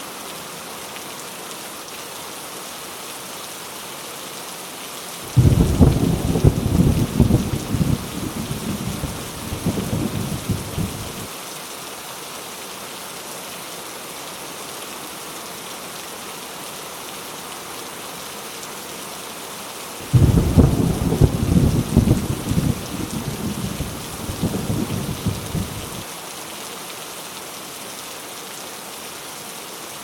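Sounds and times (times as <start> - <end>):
heavy rain: 0.0 - 30.0
thunder rumbling: 5.3 - 11.3, 20.1 - 26.0.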